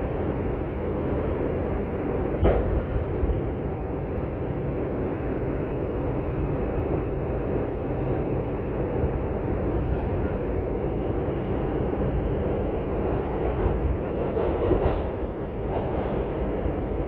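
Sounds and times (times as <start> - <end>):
subway train wheels rumbling: 0.0 - 17.0.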